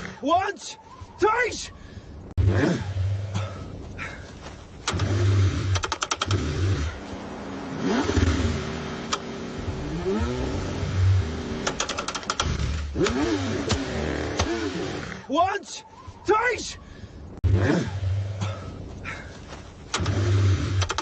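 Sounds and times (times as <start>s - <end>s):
rapid clicks: 4.8s - 6.5s, 11.6s - 13.8s, 19.9s - 21.0s
car engine cranking: 4.8s - 7.0s, 7.7s - 15.2s, 19.9s - 21.0s.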